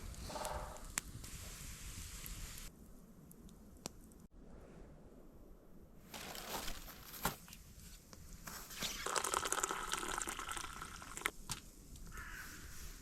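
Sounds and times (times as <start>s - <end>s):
crackles and rustles: 6.0s - 9.2s
water pouring into container: 8.8s - 11.3s.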